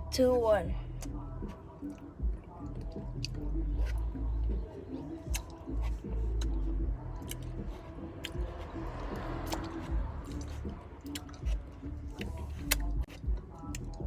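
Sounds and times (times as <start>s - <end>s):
licking and lip-smacking: 5.1s - 6.6s, 9.2s - 14.0s.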